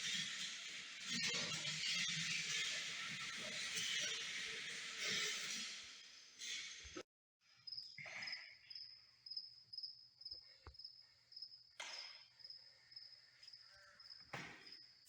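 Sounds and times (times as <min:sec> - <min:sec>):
crickets chirping: 0:07.6 - 0:15.0.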